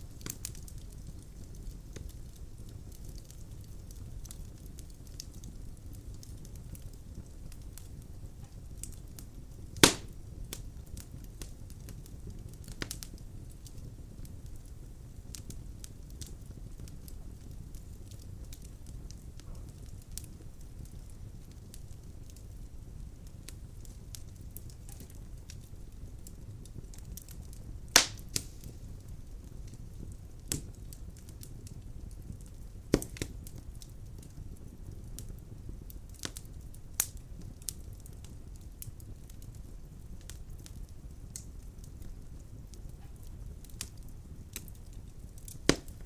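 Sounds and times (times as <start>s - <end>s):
fire crackles and pops: 0.0s - 46.0s
fire flames rumbling: 0.0s - 46.0s.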